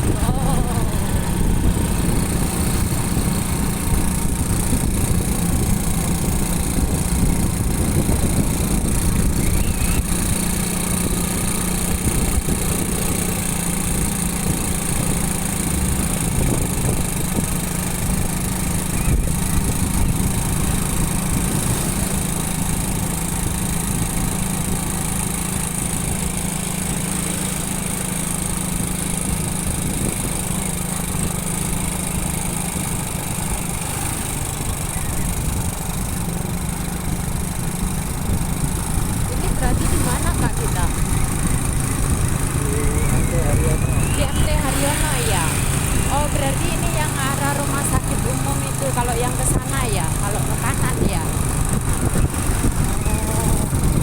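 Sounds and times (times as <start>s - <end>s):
road and wind noise: 0.0s - 54.0s
small motorcycle engine running: 0.0s - 54.0s.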